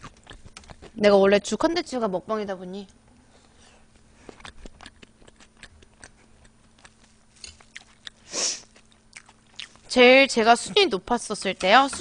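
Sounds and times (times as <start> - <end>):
chewing mouth clicks and smacks: 0.0 - 1.0, 4.2 - 9.9.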